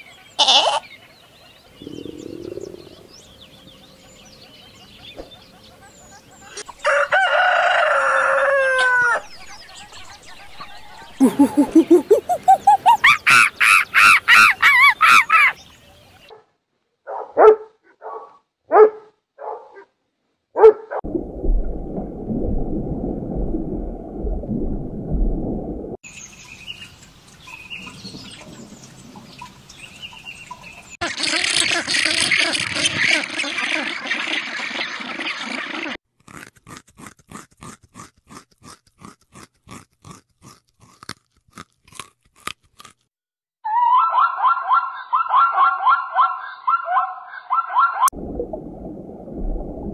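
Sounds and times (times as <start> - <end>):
dog barking: 16.3 - 19.9, 20.6 - 21.0, 43.8 - 48.1.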